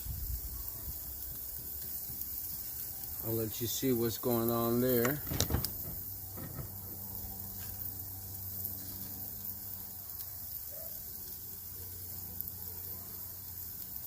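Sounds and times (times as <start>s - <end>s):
chicken sizzling on a grill: 0.0s - 14.0s
steady low hum: 4.3s - 10.0s.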